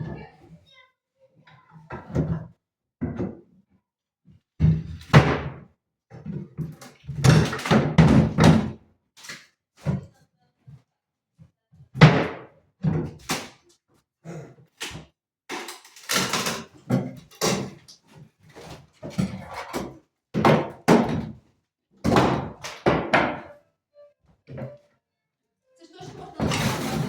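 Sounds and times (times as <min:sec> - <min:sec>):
hammering on wood: 0:20.4 - 0:21.3.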